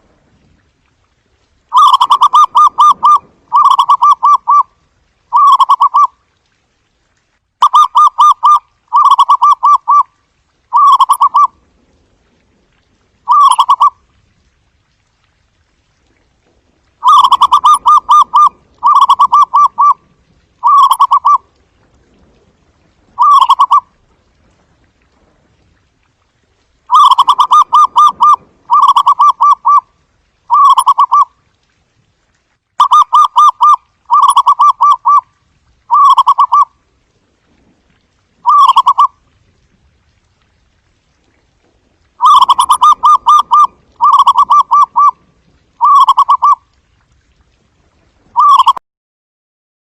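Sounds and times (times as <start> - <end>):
dove trilled cooing: 1.7 - 4.7, 5.3 - 6.1, 7.7 - 10.0, 10.7 - 11.5, 13.3 - 13.9, 17.0 - 20.0, 20.6 - 21.4, 23.2 - 23.8, 26.9 - 29.8, 30.5 - 31.3, 32.8 - 35.2, 35.9 - 36.7, 38.4 - 39.1, 42.2 - 45.2, 45.8 - 46.6, 48.4 - 48.8.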